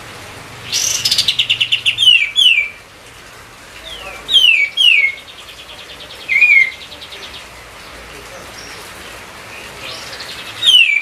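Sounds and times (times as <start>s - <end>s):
songbird singing: 0.6s - 2.9s, 3.6s - 11.0s.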